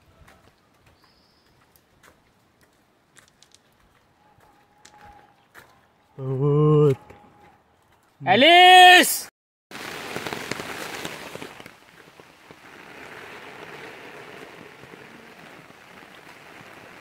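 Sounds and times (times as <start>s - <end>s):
heavy rain on road and trees: 9.7s - 17.0s.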